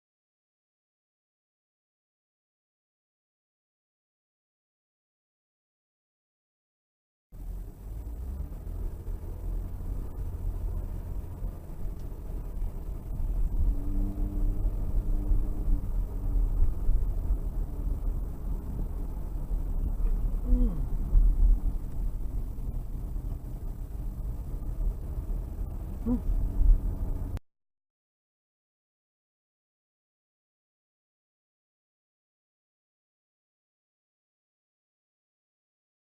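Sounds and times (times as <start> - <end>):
car driving rumble: 7.4 - 27.4
faint pitched sounds: 12.2 - 24.8, 25.6 - 27.4.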